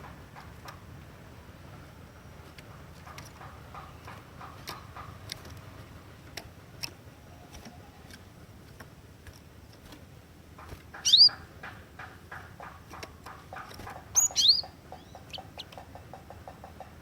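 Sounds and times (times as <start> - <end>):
bird ticking calls: 2.6 - 5.6, 10.6 - 17.0
bird whistling call: 11.0 - 11.4, 14.2 - 15.4.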